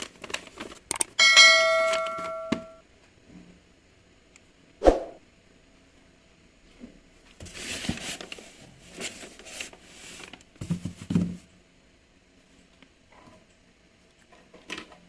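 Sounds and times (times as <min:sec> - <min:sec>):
rustling and handling noises: 0:00.0 - 0:02.8, 0:06.8 - 0:11.5.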